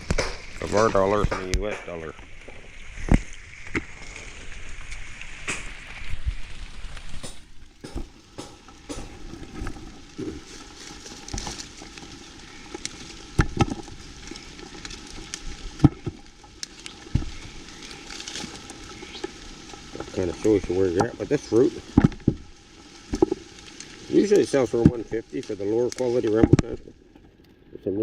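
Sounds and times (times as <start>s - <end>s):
twigs snapping and knocking: 0.0s - 6.2s, 6.8s - 27.6s
leaves and twigs rustling: 0.0s - 28.0s.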